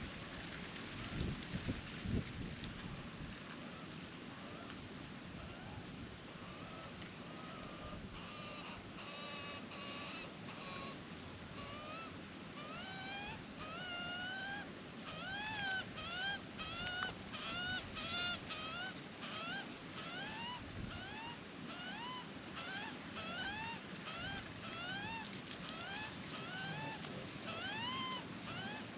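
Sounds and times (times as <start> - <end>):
wind noise: 0.9 - 3.4
magpie calling: 6.4 - 11.0, 11.6 - 28.9.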